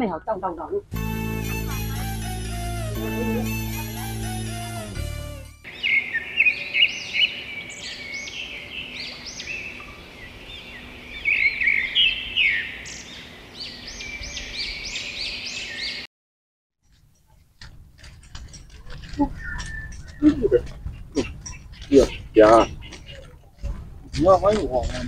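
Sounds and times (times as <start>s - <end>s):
birds chirping: 0.1s - 16.1s, 16.9s - 25.0s.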